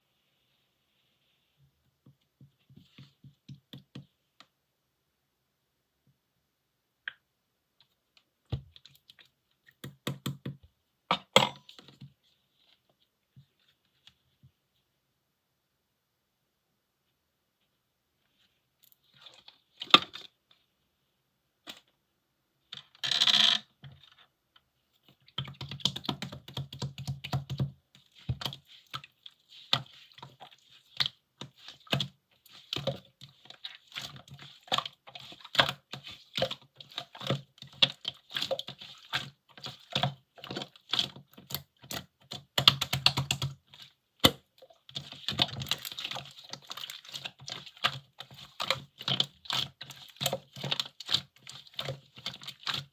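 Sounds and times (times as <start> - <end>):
slime squelch: 18.2 - 20.6, 24.8 - 52.9.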